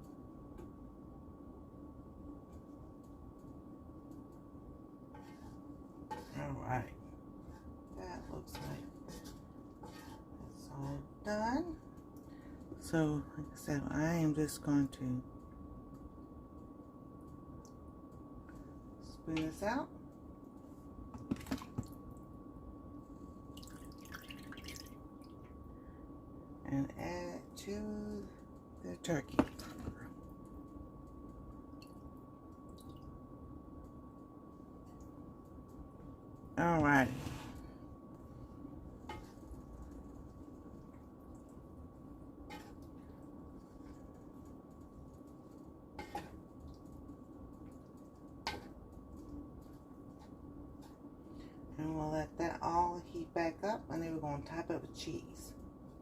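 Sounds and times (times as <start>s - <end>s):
faint steady hum: 0.0s - 56.0s
soft wet drips and splats: 23.5s - 25.6s, 32.6s - 33.1s.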